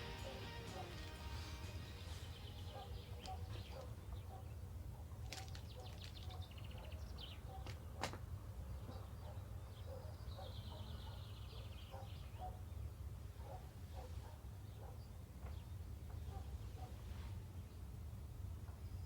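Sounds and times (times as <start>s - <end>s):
birds chirping and trilling: 0.0s - 4.3s.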